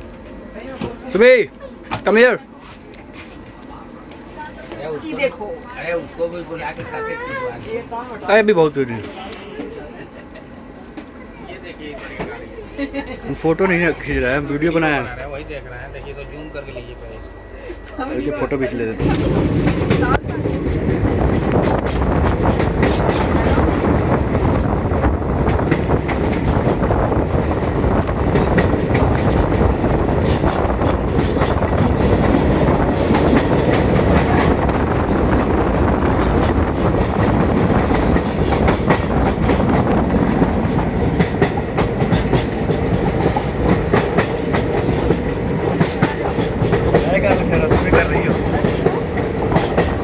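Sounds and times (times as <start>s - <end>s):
train rumbling: 0.0s - 50.0s
wheels clattering on rails: 19.0s - 50.0s.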